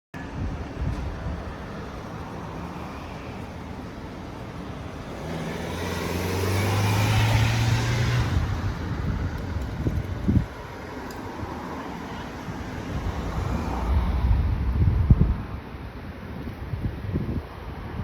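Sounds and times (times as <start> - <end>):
road traffic: 0.2 - 18.0
vehicle passing close: 4.7 - 10.5.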